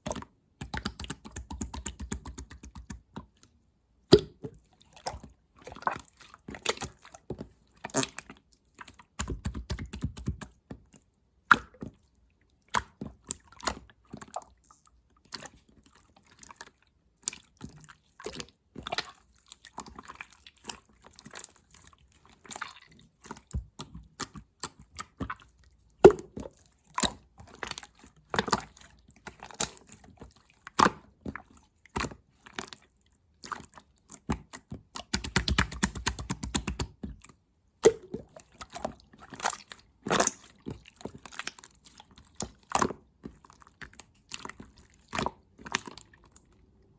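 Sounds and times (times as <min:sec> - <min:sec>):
slime squished by hand: 0:04.0 - 0:10.6, 0:33.4 - 0:46.5.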